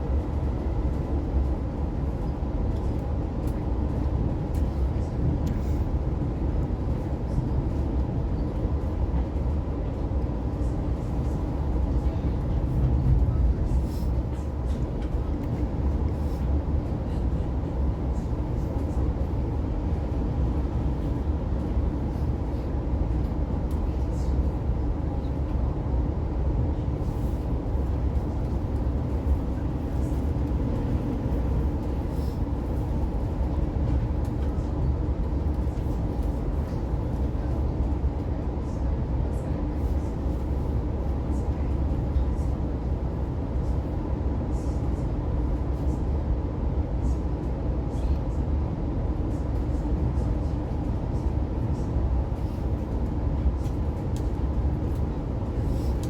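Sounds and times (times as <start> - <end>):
train wheels rumbling on track: 0.0 - 44.2.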